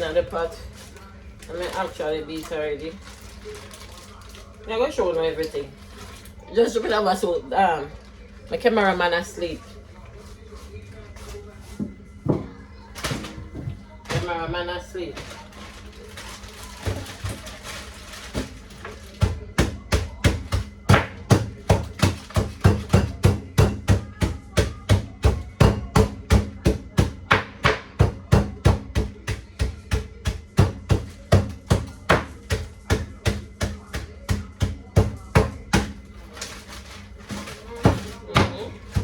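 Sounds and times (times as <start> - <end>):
ginger being pounded: 19.2 - 36.0, 37.3 - 39.0.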